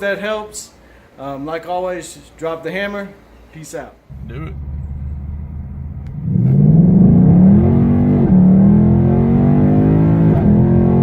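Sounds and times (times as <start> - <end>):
car engine revving: 4.1 - 11.0.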